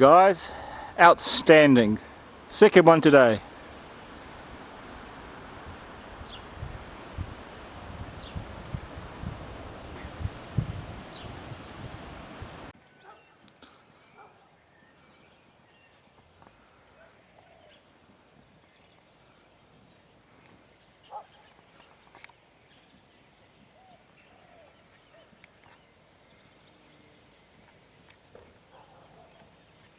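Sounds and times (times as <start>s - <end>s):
bird calls: 20.8s - 29.9s.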